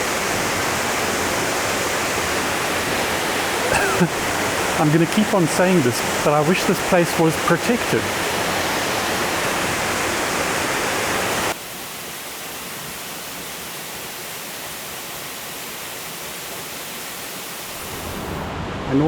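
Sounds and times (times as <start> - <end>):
waterfall rushing: 0.0 - 18.5.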